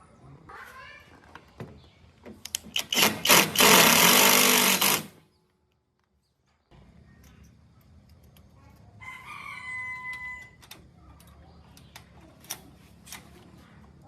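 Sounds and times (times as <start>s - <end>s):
rooster crowing: 9.0s - 10.6s.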